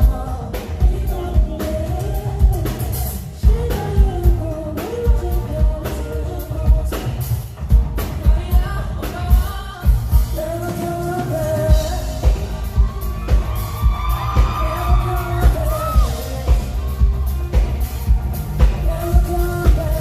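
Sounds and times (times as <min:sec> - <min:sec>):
person singing lead vocal: 0:00.0 - 0:20.0
pop-rock band playing: 0:00.0 - 0:20.0
steady drum beat: 0:00.0 - 0:20.0.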